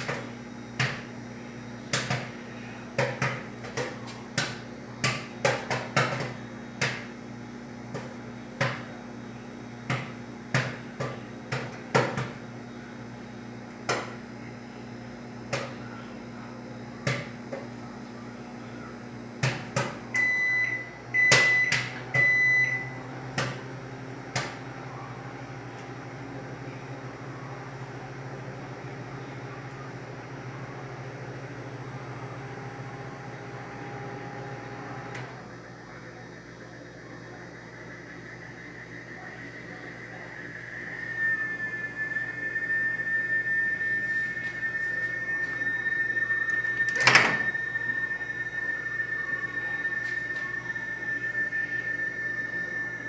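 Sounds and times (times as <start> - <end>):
microwave oven humming: 0.0 - 53.0
microwave beeps: 18.8 - 35.5, 37.4 - 53.0.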